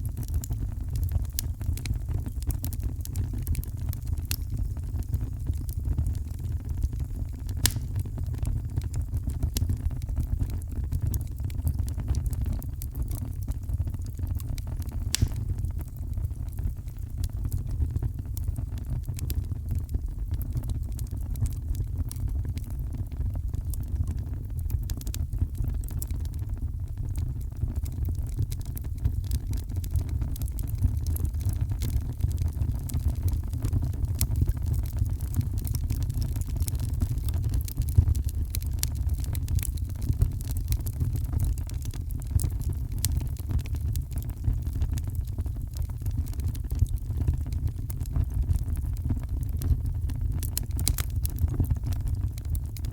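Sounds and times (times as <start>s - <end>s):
fireplace crackling: 1.3s - 1.5s, 7.5s - 8.1s, 14.8s - 16.1s, 37.6s - 39.7s, 50.3s - 51.7s.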